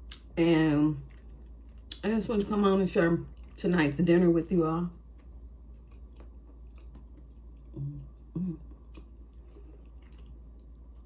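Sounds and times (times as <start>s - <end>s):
person chewing wetly: 3.3s - 3.6s, 5.0s - 11.0s.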